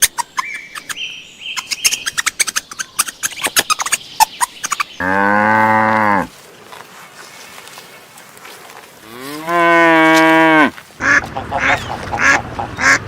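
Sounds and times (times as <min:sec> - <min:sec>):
birds chirping: 0:00.0 - 0:13.0
cow mooing: 0:05.0 - 0:06.3, 0:09.0 - 0:10.8.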